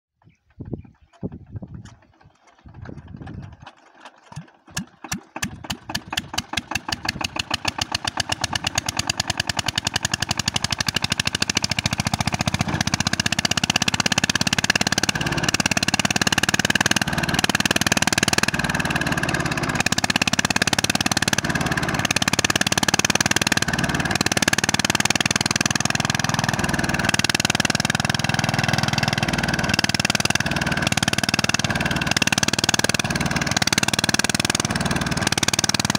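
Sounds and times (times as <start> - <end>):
diesel engine starting up: 0.2 - 35.9.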